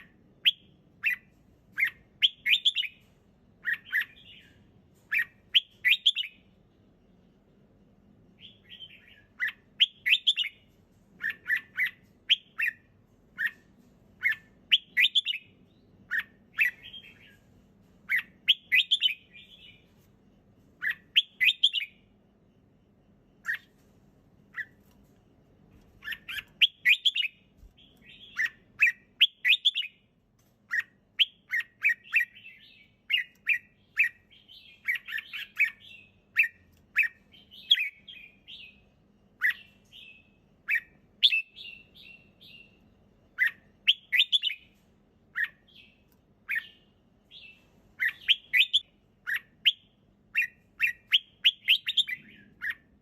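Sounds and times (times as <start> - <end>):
bird chirping phrases: 0.0 - 53.0.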